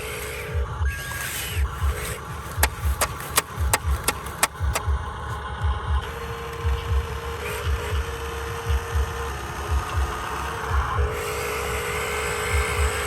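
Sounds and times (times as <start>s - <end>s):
music with low thumping beat: 0.0s - 13.0s
steady whine: 0.0s - 13.0s
sharp clicks: 1.1s - 4.9s.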